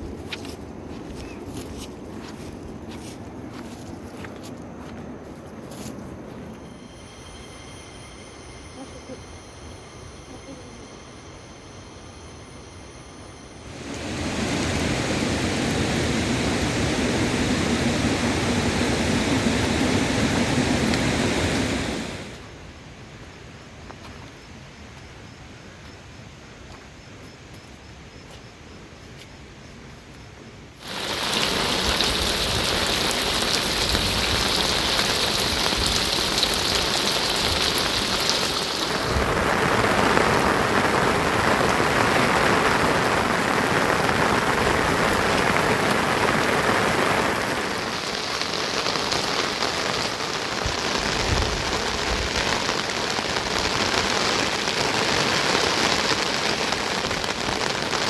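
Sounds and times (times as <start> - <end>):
rain falling steadily: 0.0 - 7.0, 13.6 - 23.9, 30.8 - 58.0
faint hiss: 0.0 - 26.6, 30.8 - 58.0.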